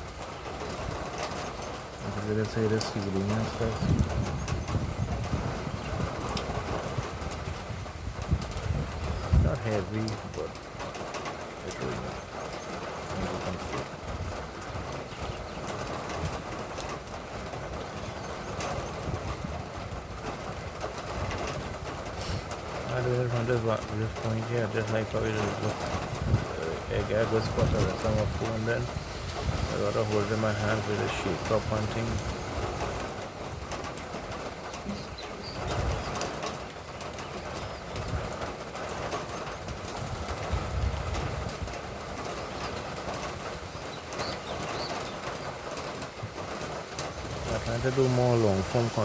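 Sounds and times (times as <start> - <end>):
light rain falling: 0.0 - 49.0
faint bird chirps: 34.7 - 38.2.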